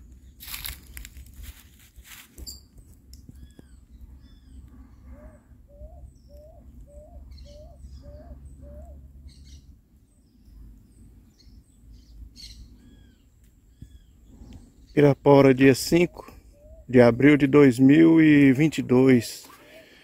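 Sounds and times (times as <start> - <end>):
birds chirping: 2.4 - 20.0
bird hooting low note: 3.4 - 9.7, 12.0 - 18.6, 19.5 - 20.0.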